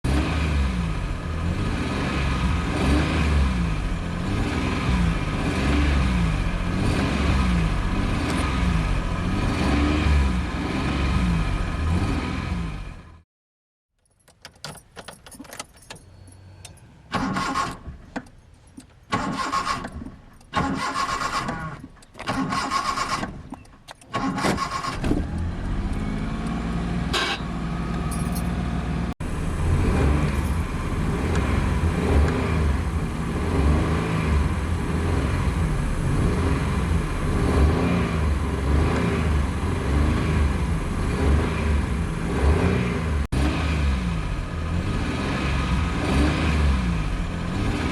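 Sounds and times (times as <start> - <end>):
car engine revving: 0.1 - 13.2, 29.0 - 47.9
car starter cranking: 14.0 - 26.0.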